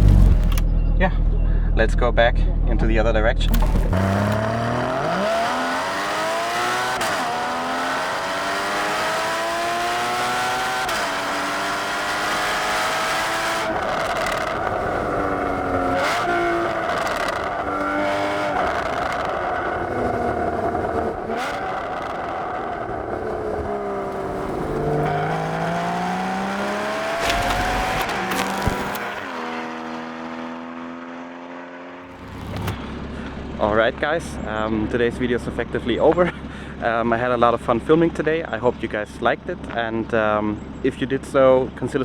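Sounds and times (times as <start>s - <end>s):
car engine accelerating through gears: 0.0s - 1.5s, 3.5s - 33.5s.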